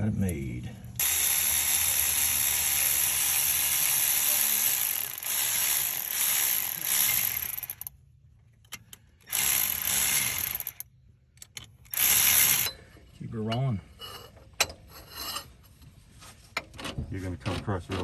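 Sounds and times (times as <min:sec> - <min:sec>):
ratchet wrench clicking: 0:01.0 - 0:08.0, 0:08.6 - 0:10.8, 0:11.4 - 0:12.8.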